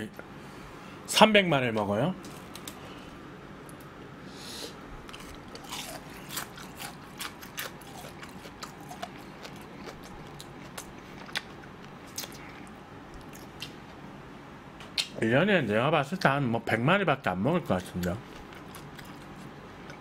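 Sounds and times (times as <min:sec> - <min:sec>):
chewing crispy fried chicken: 0:05.0 - 0:13.8, 0:17.7 - 0:20.0.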